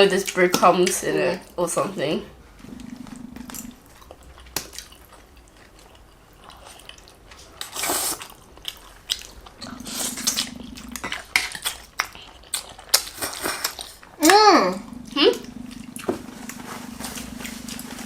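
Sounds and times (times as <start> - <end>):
chewing: 2.6 - 18.0
slurping: 7.6 - 12.3, 14.7 - 18.0.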